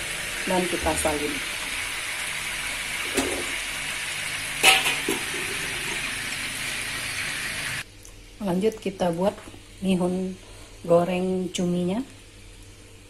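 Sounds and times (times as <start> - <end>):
squid sizzling in hot oil: 0.0 - 7.9.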